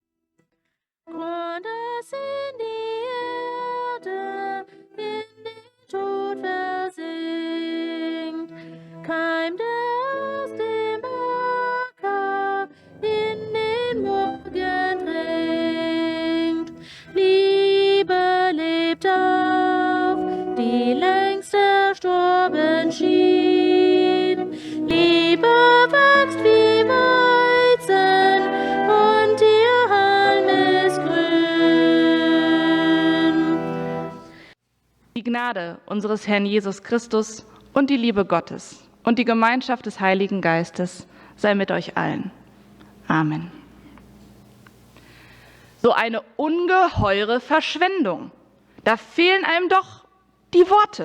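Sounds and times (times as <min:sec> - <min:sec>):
woman singing a melody: 0:01.1 - 0:34.4
sustained accompanying notes: 0:12.1 - 0:34.5.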